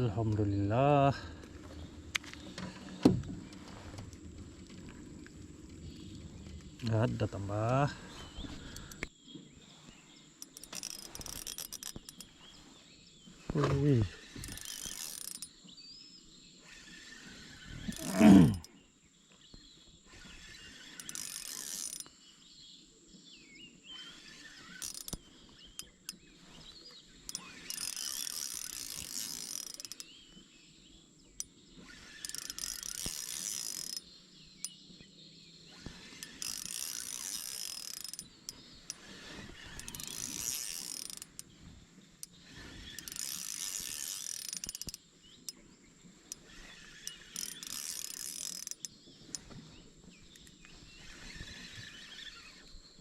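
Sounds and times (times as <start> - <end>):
fishing reel ratcheting whir: 8.6 - 9.1, 10.4 - 12.4, 14.0 - 15.6, 16.6 - 18.7, 20.2 - 22.1, 23.9 - 26.2, 27.2 - 30.2, 31.4 - 34.8, 35.7 - 41.6, 42.2 - 45.6, 46.3 - 49.5, 50.3 - 52.7.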